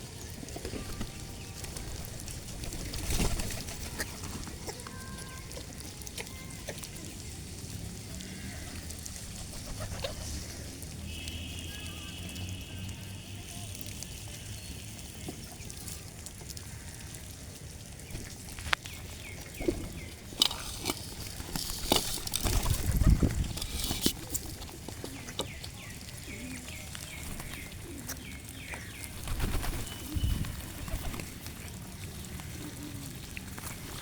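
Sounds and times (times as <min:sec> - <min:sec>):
small birds chirping: 0:00.1 - 0:34.0
rustling noise: 0:18.1 - 0:26.1.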